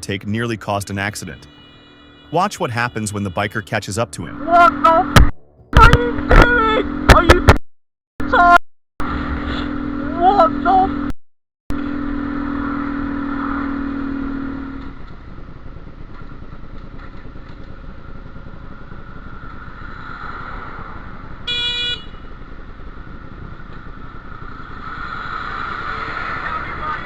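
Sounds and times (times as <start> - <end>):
motorcycle running in traffic: 8.2 - 11.1, 11.7 - 27.0.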